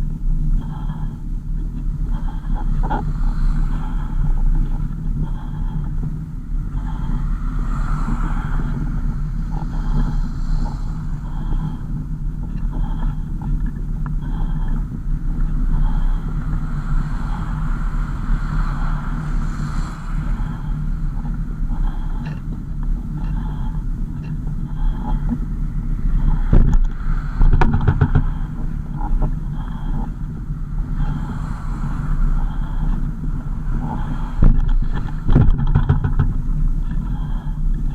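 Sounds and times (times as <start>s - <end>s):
car engine and road rumble: 0.0s - 37.9s
sharp knocks or rattles: 27.4s - 28.4s, 34.4s - 36.4s.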